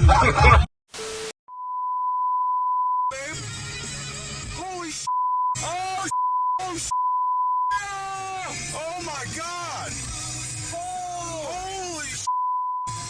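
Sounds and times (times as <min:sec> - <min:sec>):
censor bleep tone: 0:01.1 - 0:03.2, 0:05.1 - 0:07.8, 0:12.3 - 0:13.0
bursts of voice: 0:04.5 - 0:06.9, 0:07.7 - 0:10.0, 0:10.7 - 0:12.3.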